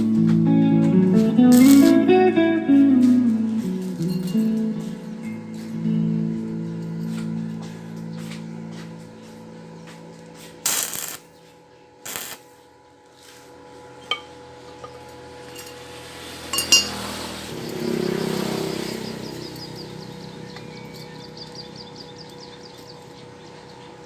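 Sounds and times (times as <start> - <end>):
steel pieces clinking: 14.8 - 15.9, 16.5 - 17.0
rushes of noise: 15.4 - 20.6.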